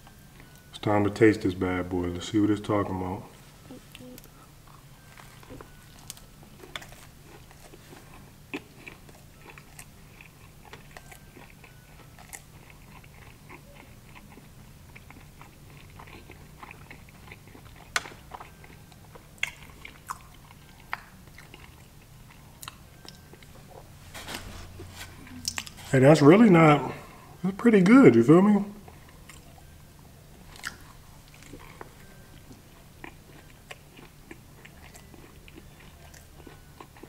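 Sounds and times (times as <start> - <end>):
low steady hum: 0.0 - 37.0
person biting and chewing: 4.6 - 25.9, 30.5 - 37.0.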